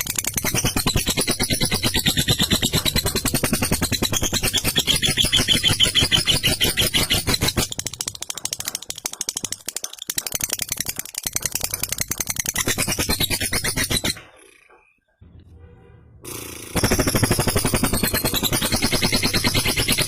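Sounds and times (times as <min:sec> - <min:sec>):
lovebird chattering song: 0:00.0 - 0:15.0.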